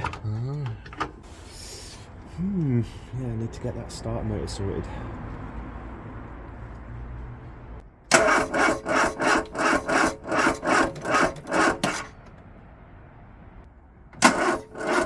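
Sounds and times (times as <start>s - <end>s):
starter motor cranking engine: 8.1s - 12.2s, 14.2s - 15.0s.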